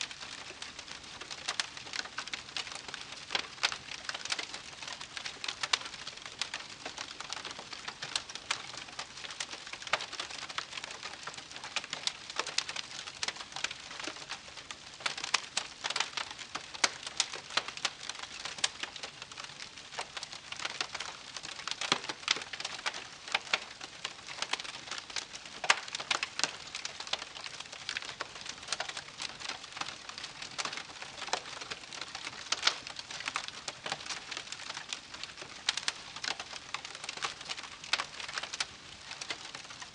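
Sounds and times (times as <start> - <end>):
campfire crackling: 0.1 - 39.9.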